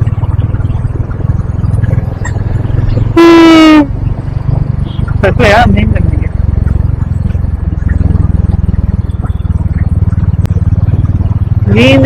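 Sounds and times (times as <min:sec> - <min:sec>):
motorcycle engine running: 0:00.0 - 0:12.0
loud horn honk: 0:03.2 - 0:03.9.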